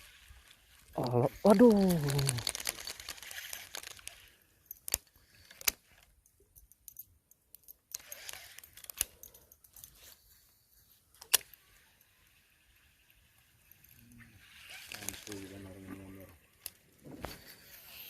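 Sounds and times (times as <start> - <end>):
fishing tackle clicks: 1.0 - 10.2.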